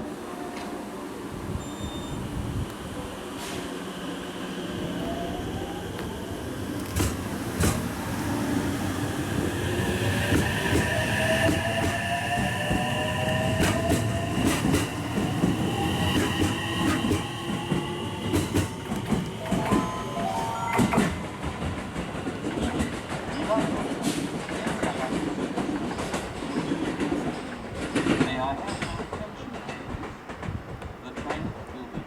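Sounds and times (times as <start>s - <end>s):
train wheels clacking over rail joints: 6.8s - 8.0s, 10.2s - 19.8s, 20.9s - 32.0s.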